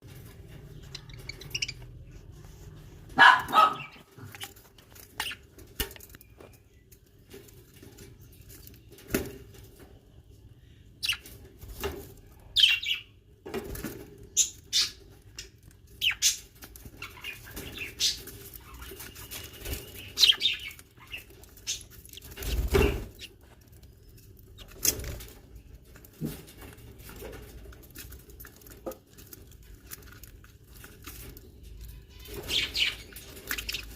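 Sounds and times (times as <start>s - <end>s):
young birds chirping: 0.0s - 33.9s
wings fluttering: 16.0s - 31.6s.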